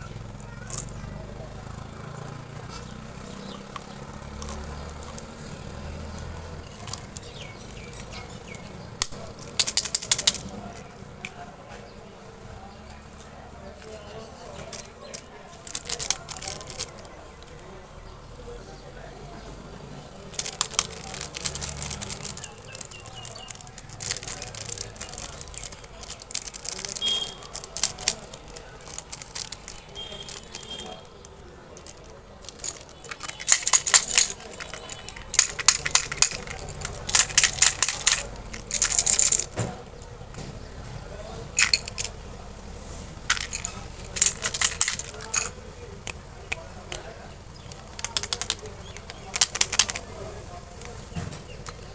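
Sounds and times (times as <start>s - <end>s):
plastic packaging crinkling: 9.0s - 10.9s, 14.6s - 17.7s, 20.3s - 39.7s, 41.6s - 42.1s, 43.2s - 45.6s, 47.6s - 51.9s.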